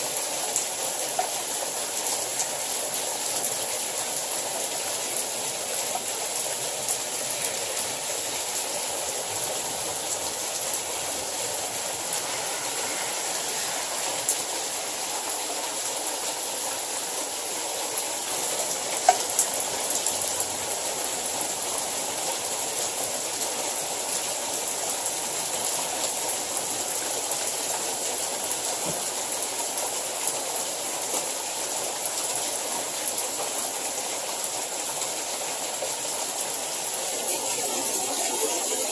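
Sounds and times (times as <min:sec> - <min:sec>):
hail and rain falling: 0:00.0 - 0:38.9.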